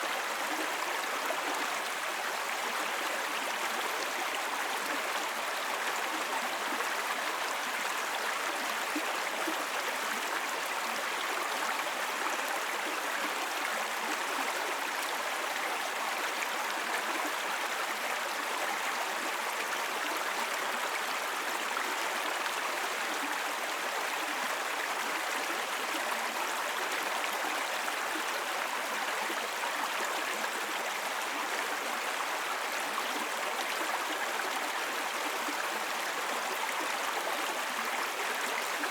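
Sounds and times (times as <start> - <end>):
brook babbling over rocks: 0.0 - 38.9.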